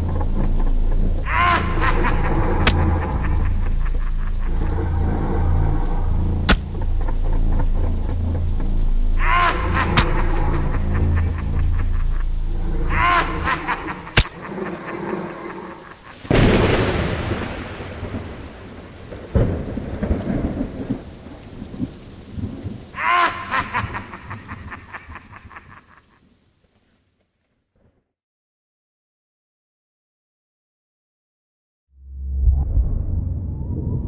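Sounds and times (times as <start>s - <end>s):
thunderclap rumbling: 0.0s - 25.7s, 32.0s - 34.0s
steady rain: 0.0s - 27.3s
sharp crack: 1.5s - 4.5s, 6.4s - 7.3s, 9.5s - 11.6s, 13.2s - 14.8s, 16.1s - 20.9s.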